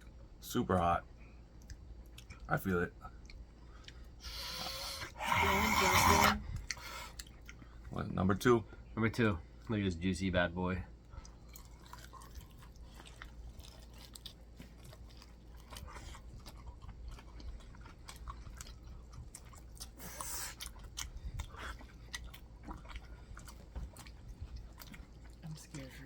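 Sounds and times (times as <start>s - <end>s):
chewing and biting: 1.5s - 2.5s, 3.1s - 8.0s, 11.1s - 26.0s.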